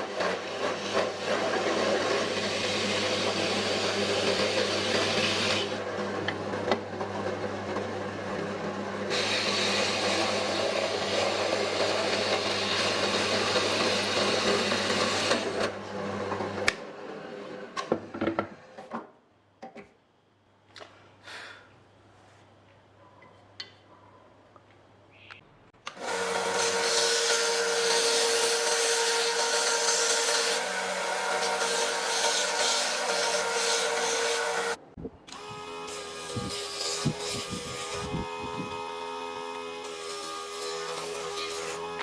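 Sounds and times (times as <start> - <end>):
power tool running on wood: 0.0 - 17.1, 25.9 - 42.0.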